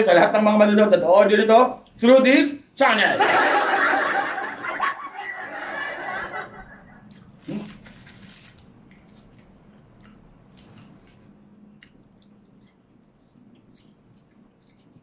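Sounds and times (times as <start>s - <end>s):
chewing with wet mouth smacks: 8.5s - 15.0s.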